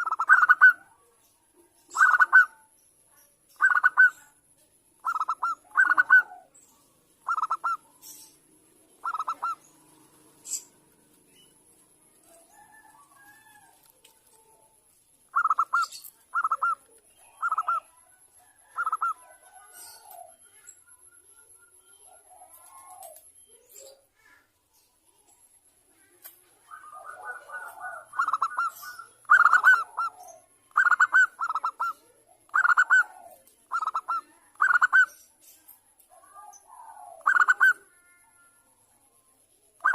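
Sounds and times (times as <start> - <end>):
dove cooing: 0.0 - 1.0, 1.9 - 2.7, 3.6 - 4.3, 5.0 - 6.6, 7.2 - 11.1, 15.3 - 20.6, 22.0 - 24.0, 26.6 - 35.2, 36.1 - 38.4.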